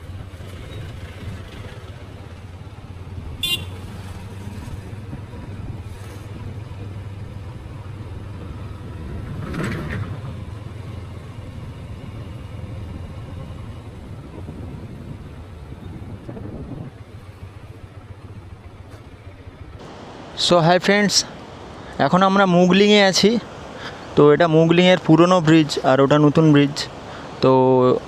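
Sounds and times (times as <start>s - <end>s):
motorcycle engine and road rumble: 0.0s - 28.0s
short horn toot: 3.4s - 3.7s.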